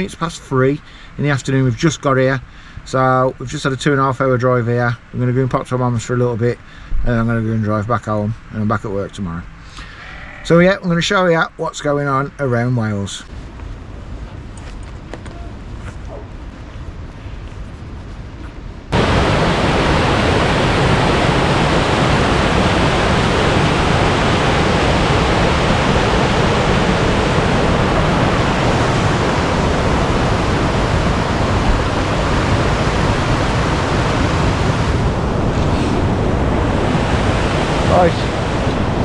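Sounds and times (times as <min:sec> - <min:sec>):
outdoor air noise: 0:00.0 - 0:39.0
waterfall roaring: 0:18.9 - 0:39.0.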